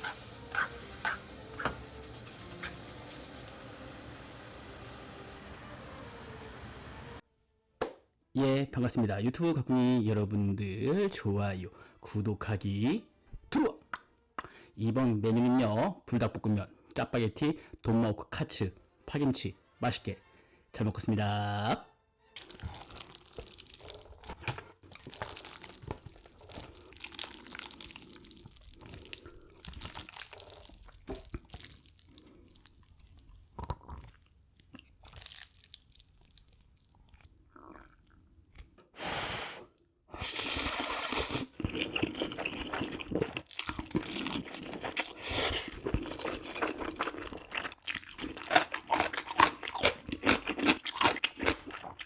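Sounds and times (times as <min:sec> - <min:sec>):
wet noodle eating noises: 0:00.0 - 0:03.6, 0:22.4 - 0:38.3, 0:40.1 - 0:52.0
crunchy bites and chewing: 0:41.5 - 0:52.0.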